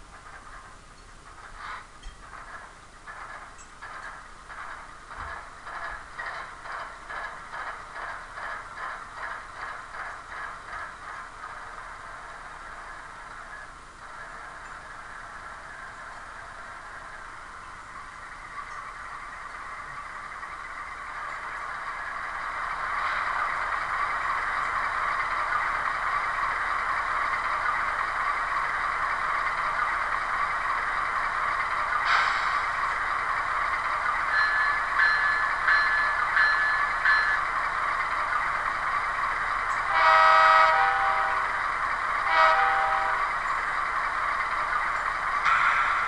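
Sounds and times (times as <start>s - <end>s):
train horn blasts: 39.9s - 41.6s, 42.2s - 43.4s.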